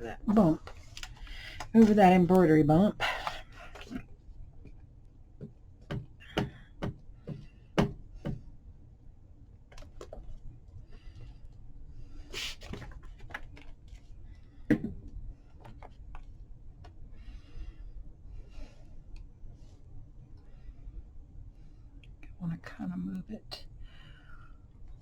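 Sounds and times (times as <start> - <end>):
knocks and taps on a table: 5.4 - 8.4, 14.7 - 15.0.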